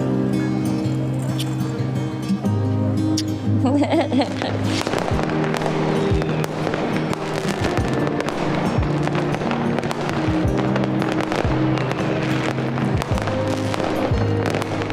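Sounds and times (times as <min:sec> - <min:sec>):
background music with held tones: 0:00.0 - 0:14.9
fireworks cracking and popping: 0:04.4 - 0:14.9.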